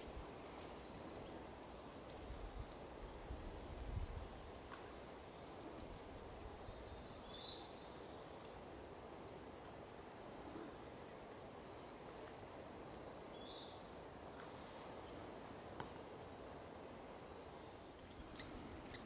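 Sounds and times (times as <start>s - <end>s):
faint hiss: 0.0s - 19.0s
bird chirps: 18.1s - 19.0s.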